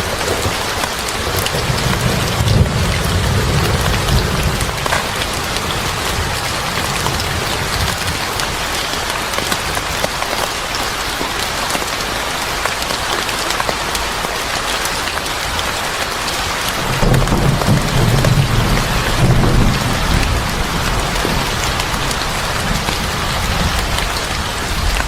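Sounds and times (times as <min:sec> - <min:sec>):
heavy rain on a surface: 0:00.0 - 0:25.0
thunder rumble: 0:01.2 - 0:08.3, 0:16.8 - 0:25.0.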